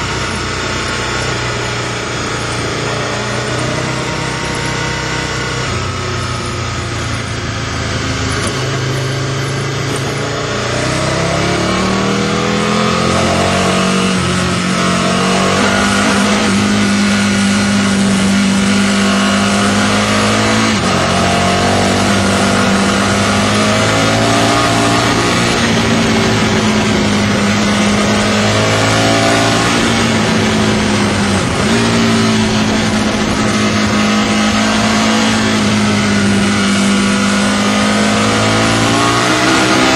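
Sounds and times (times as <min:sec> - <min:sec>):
motorcycle engine revving: 0:00.0 - 0:39.9
wind rush: 0:12.4 - 0:39.9.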